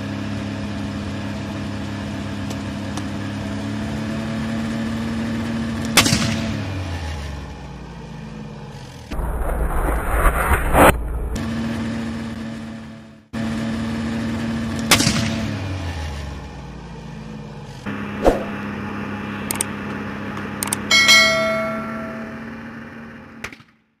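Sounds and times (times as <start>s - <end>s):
sharp clicks: 19.5s - 19.7s, 20.6s - 20.9s
bell-like ding: 20.9s - 22.6s.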